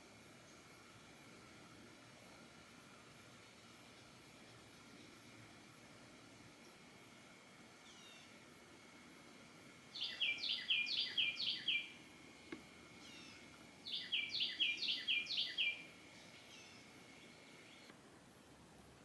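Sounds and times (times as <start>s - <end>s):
songbird singing: 9.9s - 17.9s.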